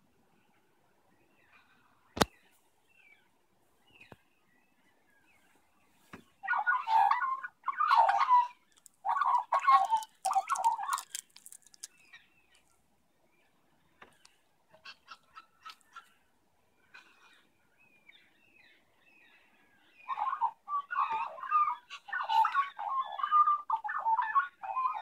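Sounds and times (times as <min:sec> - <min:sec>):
loud raspy bird calls: 0:06.4 - 0:12.6.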